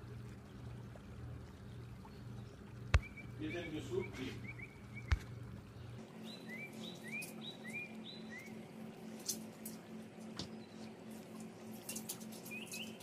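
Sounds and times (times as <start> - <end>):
low steady hum: 0.0 - 13.0
small bird chirping: 2.1 - 5.2, 12.3 - 13.0.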